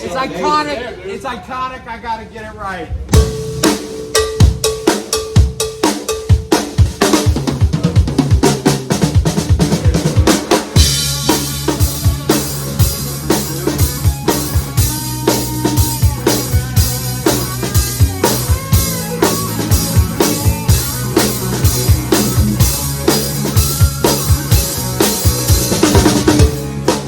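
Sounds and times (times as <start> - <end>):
rock band playing live: 3.1 - 27.0
kick and snare drum beat: 3.2 - 12.8.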